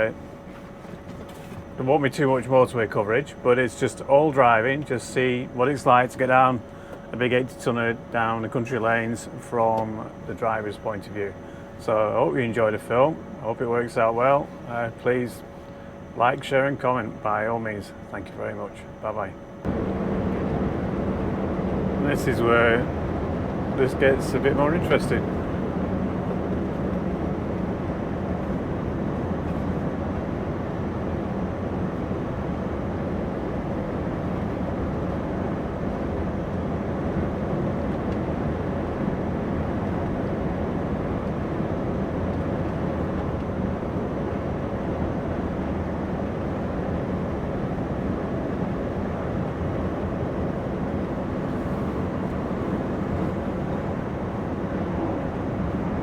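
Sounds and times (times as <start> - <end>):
diesel truck engine running: 0.0 - 56.0
road noise: 19.7 - 25.9.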